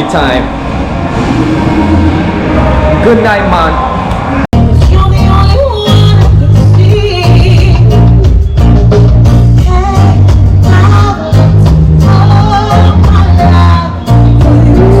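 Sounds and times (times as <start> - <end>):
heavy bass line: 0.0 - 15.0
person singing: 9.6 - 15.0.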